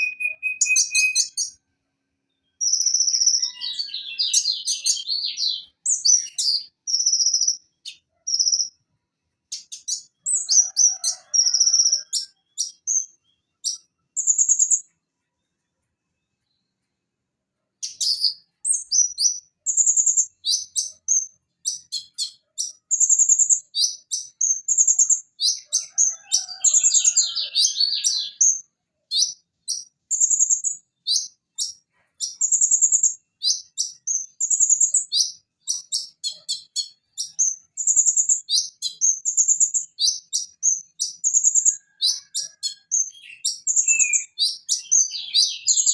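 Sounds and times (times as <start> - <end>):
bird chirping and trilling: 0.0 - 1.6, 2.3 - 8.8, 9.5 - 14.9, 17.8 - 45.9.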